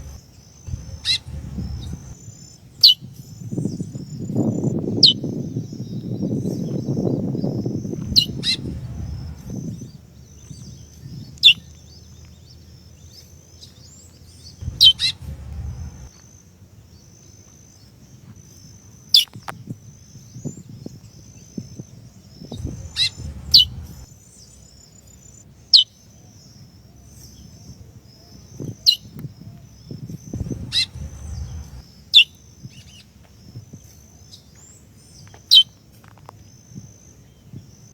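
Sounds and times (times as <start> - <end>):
finch calls: 0.0 - 2.2, 8.1 - 9.6, 14.6 - 16.1, 22.6 - 24.0, 30.4 - 31.8
low rumble: 0.0 - 2.2, 8.0 - 9.8, 14.6 - 16.1, 22.6 - 24.1, 30.4 - 31.8.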